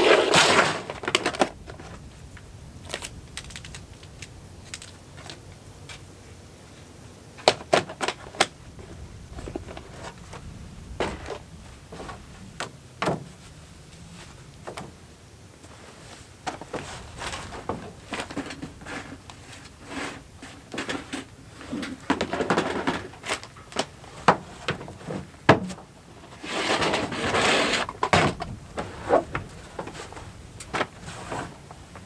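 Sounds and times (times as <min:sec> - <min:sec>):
objects being handled clicking: 0:02.8 - 0:06.0.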